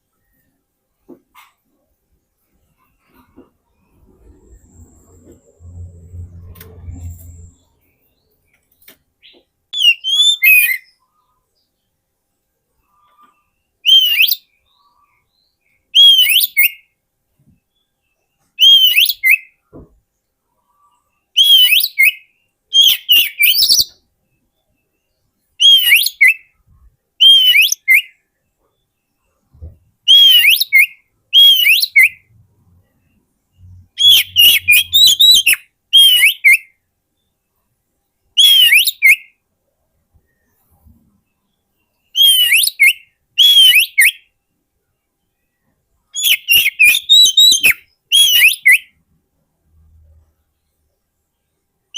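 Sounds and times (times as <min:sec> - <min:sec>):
bird whistling song: 0:09.2 - 0:11.0, 0:13.8 - 0:16.9, 0:18.6 - 0:19.6, 0:21.3 - 0:24.0, 0:25.6 - 0:26.6, 0:27.2 - 0:28.2, 0:29.7 - 0:32.3, 0:33.6 - 0:36.8, 0:38.4 - 0:39.4, 0:42.1 - 0:44.4, 0:46.2 - 0:49.0.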